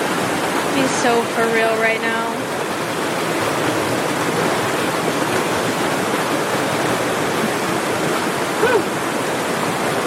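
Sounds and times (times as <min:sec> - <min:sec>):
mountain stream rushing: 0:00.0 - 0:10.0.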